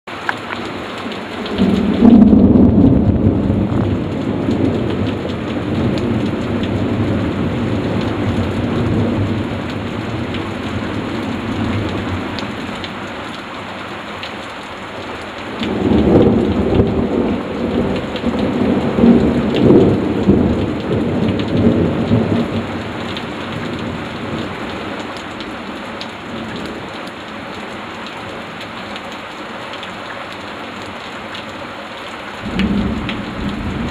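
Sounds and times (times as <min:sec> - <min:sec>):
heavy rain: 0:00.1 - 0:33.9
rolling thunder: 0:01.5 - 0:12.3, 0:15.6 - 0:24.3, 0:32.4 - 0:33.9.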